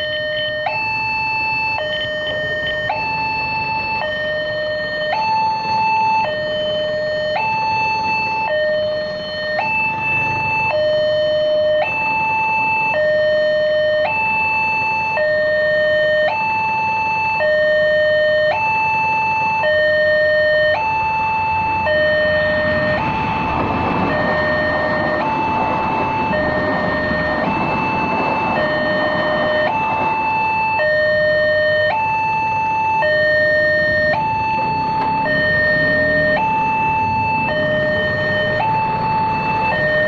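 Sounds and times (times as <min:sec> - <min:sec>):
two-tone crossing alarm: 0:00.0 - 0:40.0
broad rumbling noise: 0:21.3 - 0:31.9, 0:32.5 - 0:40.0.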